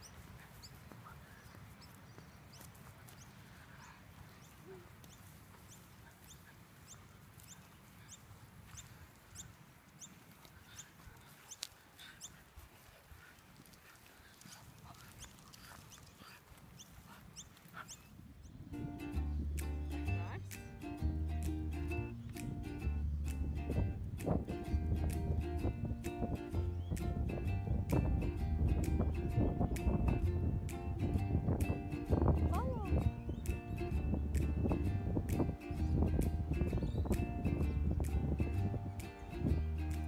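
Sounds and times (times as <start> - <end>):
bird chirping: 0.0 - 12.4, 25.6 - 28.0, 33.0 - 40.0
low wind rumble: 16.6 - 40.0.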